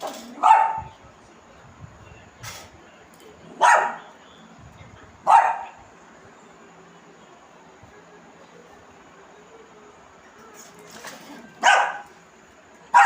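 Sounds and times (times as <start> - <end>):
dog barking: 0.4 - 0.9, 3.6 - 4.1, 5.2 - 5.8, 11.6 - 12.1.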